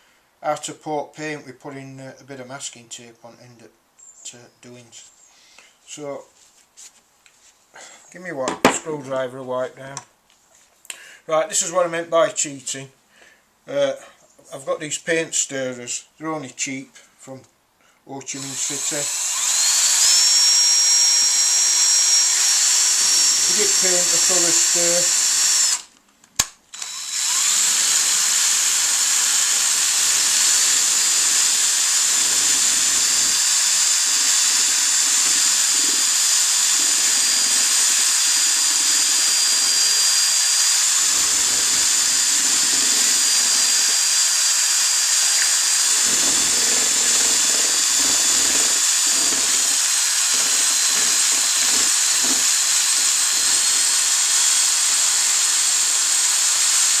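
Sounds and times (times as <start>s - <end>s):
electric drill whining: 18.4s - 25.9s, 26.7s - 57.0s.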